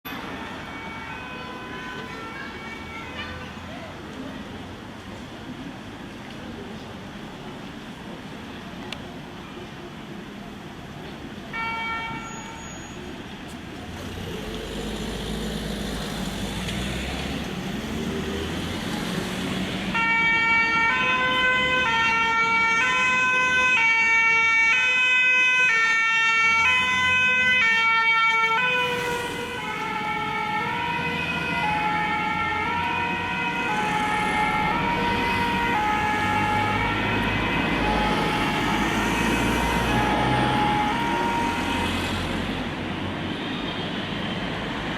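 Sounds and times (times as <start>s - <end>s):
street traffic: 0.0s - 44.9s
two-tone siren: 20.0s - 42.3s.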